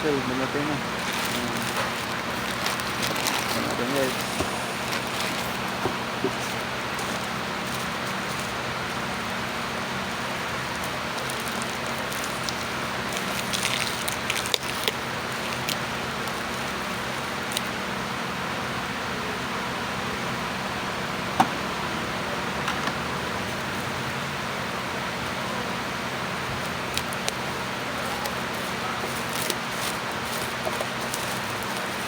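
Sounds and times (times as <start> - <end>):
plastic packaging crinkling: 0.4 - 8.6, 10.0 - 17.7, 26.6 - 32.0.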